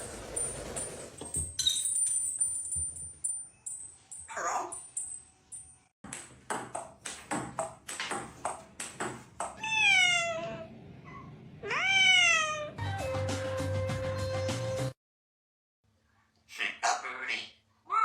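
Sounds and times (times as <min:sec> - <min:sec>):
cat meowing: 0:09.6 - 0:12.8.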